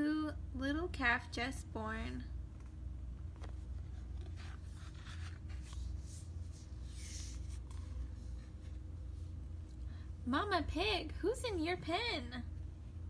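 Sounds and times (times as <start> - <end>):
steady low hum: 0.0 - 13.0
book pages rustling: 2.5 - 9.8.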